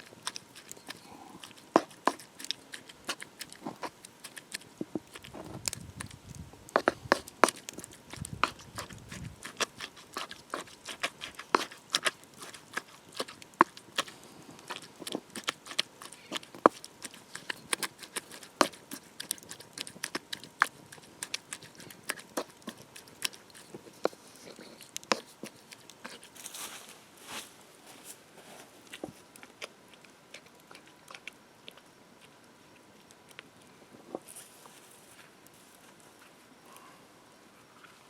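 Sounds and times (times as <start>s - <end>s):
wood fire crackling: 0.0s - 21.2s.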